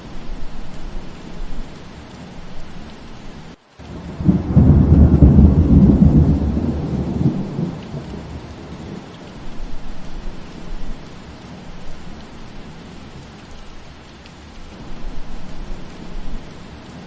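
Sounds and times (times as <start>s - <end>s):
steady rain: 0.0s - 17.0s
low roll of thunder: 3.8s - 11.1s.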